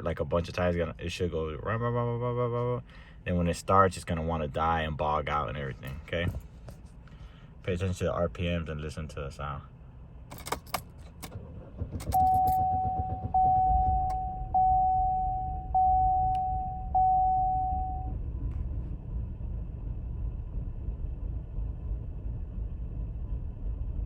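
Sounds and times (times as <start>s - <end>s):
car engine starting and rumbling: 0.0s - 24.0s
dashboard warning chime: 12.0s - 18.2s.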